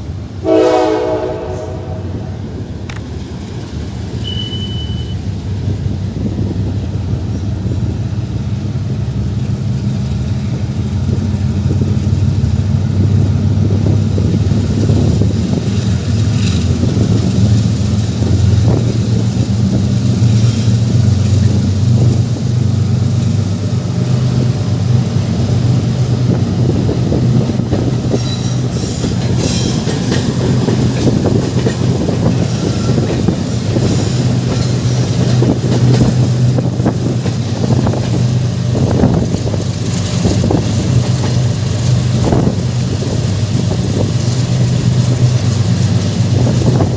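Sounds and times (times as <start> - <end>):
train low rumble: 0.0 - 46.9
short high squeals: 4.2 - 5.2.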